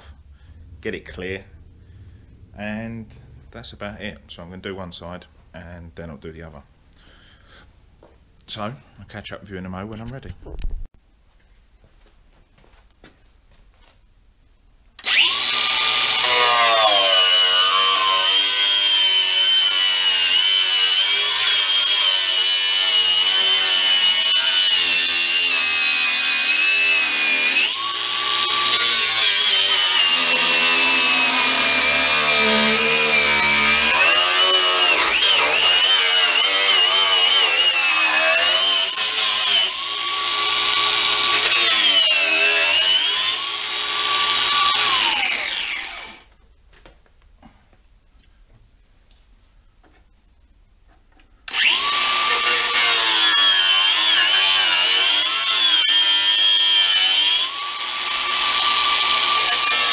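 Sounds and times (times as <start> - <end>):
angle grinder cutting sheet metal: 15.0 - 46.3, 51.5 - 59.9.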